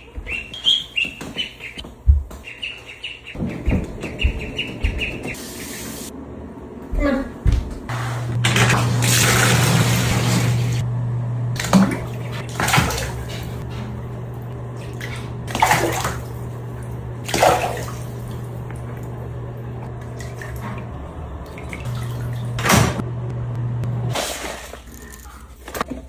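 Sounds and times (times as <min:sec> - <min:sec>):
steady low hum: 0:01.6 - 0:24.2
water splashing in a bathtub: 0:07.5 - 0:10.8, 0:11.6 - 0:23.0, 0:24.1 - 0:26.0.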